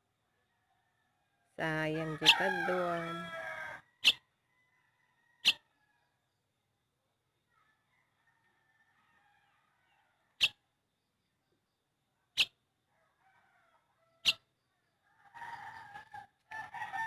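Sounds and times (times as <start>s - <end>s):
rooster crowing: 1.8s - 5.4s, 15.2s - 17.0s.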